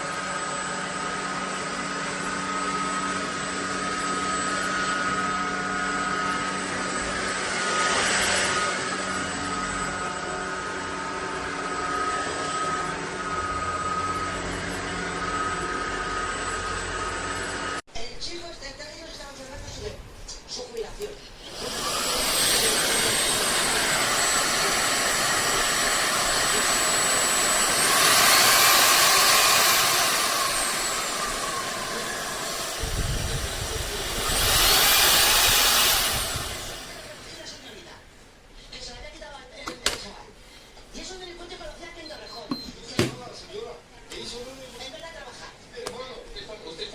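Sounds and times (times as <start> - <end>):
vacuum cleaner rushing air: 0.0 - 17.6, 21.2 - 37.9
vacuum high whine: 0.0 - 17.8, 18.8 - 38.0
stick vacuum whining: 21.0 - 37.8.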